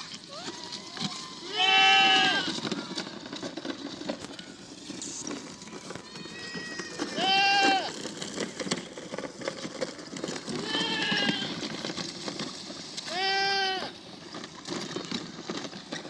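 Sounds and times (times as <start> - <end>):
goat bleating: 0.3 - 2.7, 6.0 - 8.0, 10.5 - 11.7, 13.1 - 13.9.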